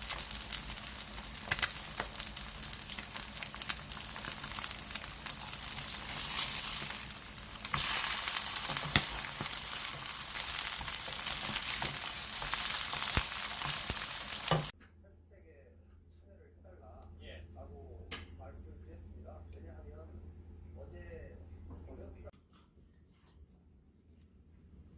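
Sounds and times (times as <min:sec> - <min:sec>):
food sizzling in a pan: 0:00.0 - 0:14.7.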